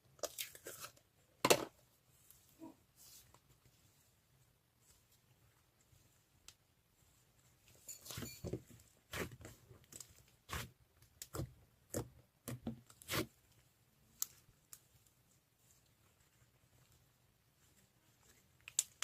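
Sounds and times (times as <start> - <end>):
slime crackling squishes: 8.7 - 19.0.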